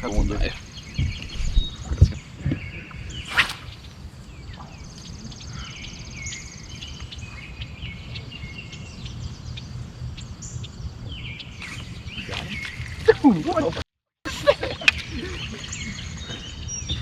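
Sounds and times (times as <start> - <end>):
birds chirping: 0.0 - 13.0
brief sharp noise: 3.3 - 3.9.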